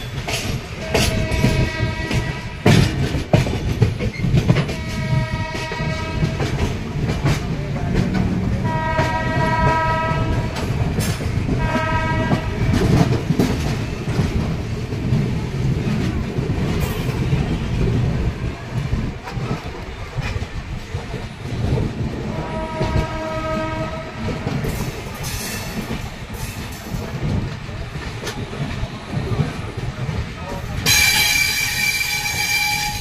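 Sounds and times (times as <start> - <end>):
rail-joint clicks: 0.0 - 33.0
train wheels rumbling on rails: 0.0 - 33.0
train horn blasts: 0.8 - 2.8, 4.7 - 6.6, 8.6 - 10.7, 11.6 - 13.1, 22.3 - 24.3, 30.9 - 33.0.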